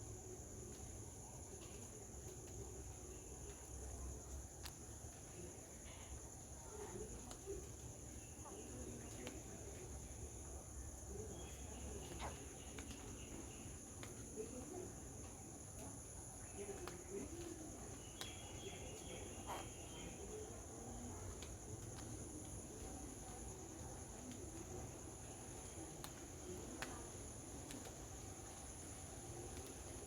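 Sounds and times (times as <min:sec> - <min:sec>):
insects chirring: 0:00.0 - 0:30.0
faint clicks: 0:04.3 - 0:05.2, 0:11.8 - 0:16.0, 0:16.6 - 0:20.1, 0:26.0 - 0:28.0.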